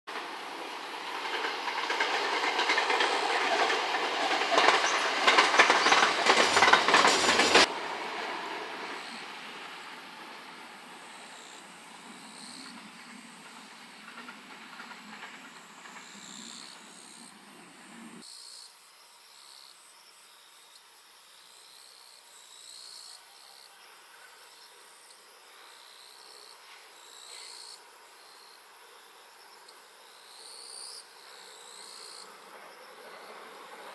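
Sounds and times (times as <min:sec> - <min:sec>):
train wheels clattering on rails: 0:00.1 - 0:09.0, 0:12.2 - 0:17.3
distant train running: 0:00.1 - 0:18.2, 0:30.0 - 0:33.9
insects chirping: 0:00.2 - 0:07.6, 0:08.2 - 0:33.9.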